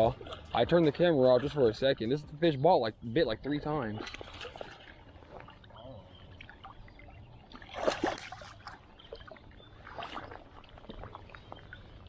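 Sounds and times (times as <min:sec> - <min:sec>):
water splashing in creek: 0:03.9 - 0:12.0.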